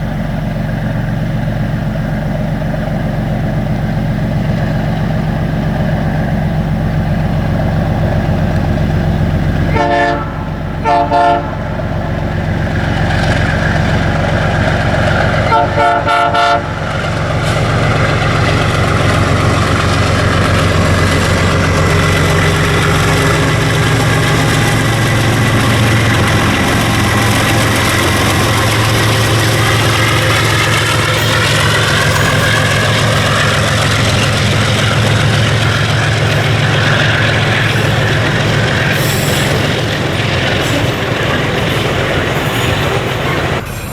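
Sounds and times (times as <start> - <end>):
diesel locomotive engine: 0.0 - 43.9
locomotive horn blasts: 9.6 - 11.8, 15.4 - 16.8.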